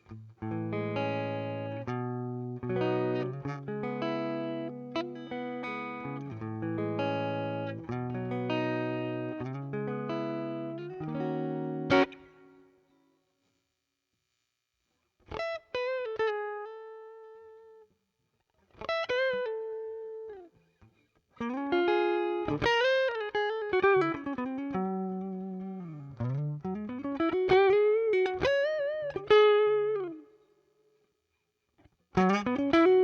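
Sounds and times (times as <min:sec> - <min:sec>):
clean electric guitar lead: 0:00.4 - 0:12.5.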